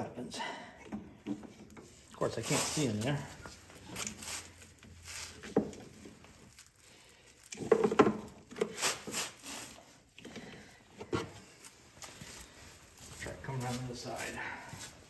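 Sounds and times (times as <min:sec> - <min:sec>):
tools knocking and scraping: 0:00.8 - 0:02.8, 0:04.8 - 0:06.2, 0:07.6 - 0:09.2.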